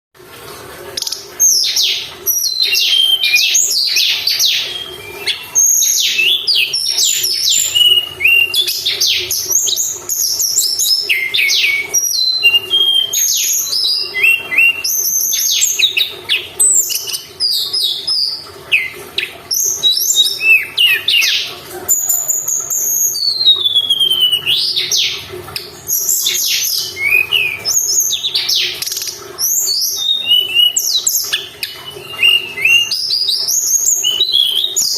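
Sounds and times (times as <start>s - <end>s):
songbird singing: 1.0s - 25.3s.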